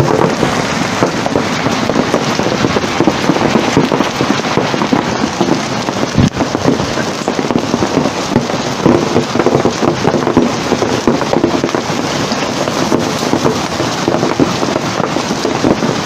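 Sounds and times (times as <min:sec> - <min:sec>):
hail clattering on hard surfaces: 0:00.0 - 0:16.0.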